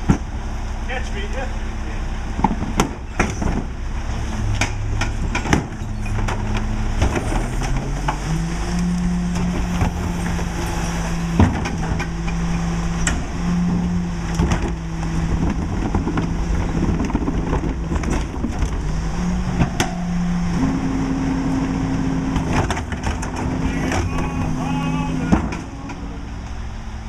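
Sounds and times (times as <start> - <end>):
diesel truck engine running: 0.0 - 27.0
knocks and clatter: 2.4 - 3.8, 4.4 - 8.3, 9.3 - 20.8, 21.6 - 24.5.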